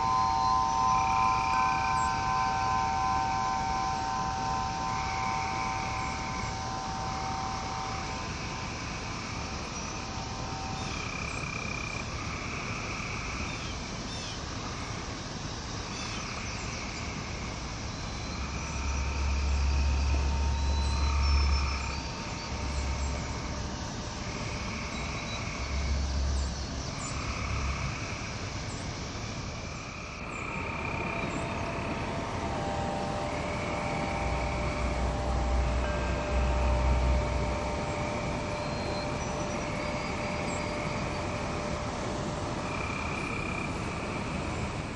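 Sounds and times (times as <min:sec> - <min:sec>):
wind chimes ringing: 0:00.0 - 0:11.6, 0:18.2 - 0:23.7, 0:30.8 - 0:43.0
low rumbling: 0:00.0 - 0:12.4, 0:17.7 - 0:28.5, 0:30.2 - 0:42.8
frogs calling: 0:00.0 - 0:44.9
nature ambience: 0:00.0 - 0:44.9.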